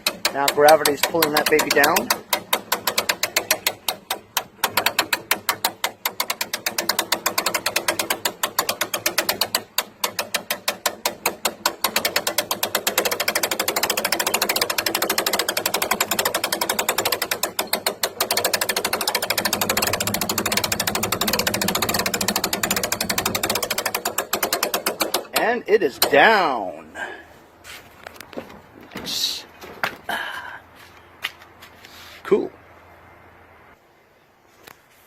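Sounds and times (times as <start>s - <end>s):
winch clicking: 0.0s - 26.6s.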